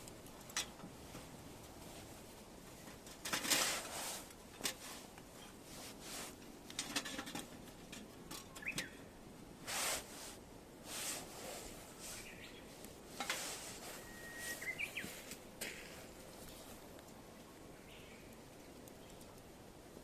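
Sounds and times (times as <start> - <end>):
sharp snaps of fire: 0.0 - 20.0
rustling and scraping: 0.3 - 8.9, 9.6 - 17.2.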